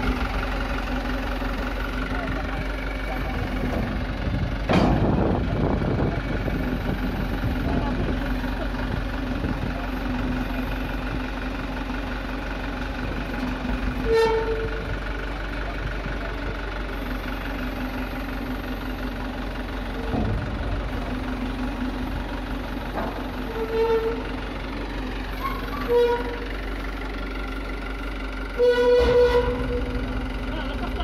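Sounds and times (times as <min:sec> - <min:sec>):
diesel truck engine running: 0:00.0 - 0:31.0
truck horn toots: 0:14.0 - 0:14.8, 0:23.4 - 0:24.2, 0:25.4 - 0:26.4, 0:28.6 - 0:30.0.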